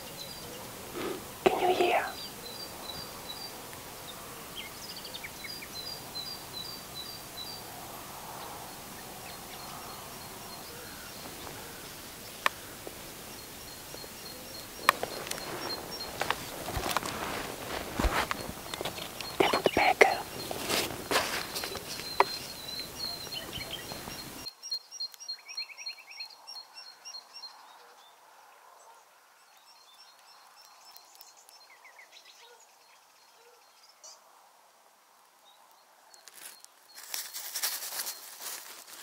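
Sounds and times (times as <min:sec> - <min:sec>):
rustling: 0:00.0 - 0:24.5, 0:36.2 - 0:39.0
small birds chirping: 0:00.0 - 0:28.2, 0:28.9 - 0:34.3, 0:35.3 - 0:39.0.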